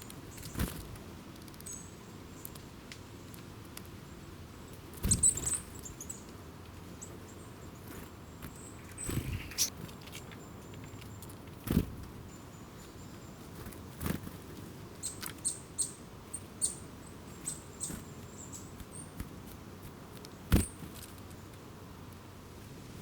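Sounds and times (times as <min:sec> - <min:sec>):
small birds high thin calls: 0:01.6 - 0:02.6, 0:05.0 - 0:06.3, 0:06.9 - 0:09.8, 0:15.0 - 0:19.2.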